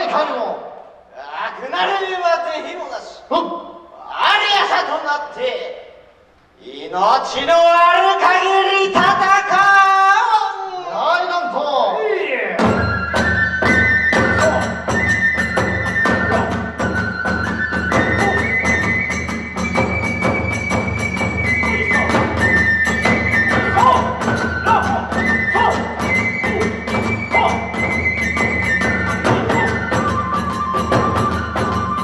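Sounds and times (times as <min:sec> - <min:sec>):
drum beats: 0:08.9 - 0:09.7, 0:12.6 - 0:32.0
bamboo flute long notes: 0:12.6 - 0:32.0.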